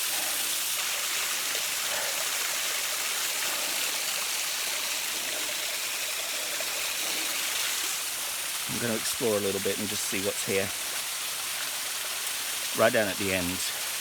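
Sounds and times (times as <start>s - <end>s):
waterfall rushing: 8.3s - 11.0s.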